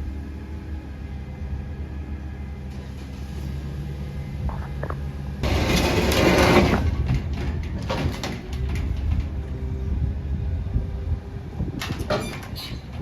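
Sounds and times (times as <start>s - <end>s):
truck engine running: 0.0s - 11.8s.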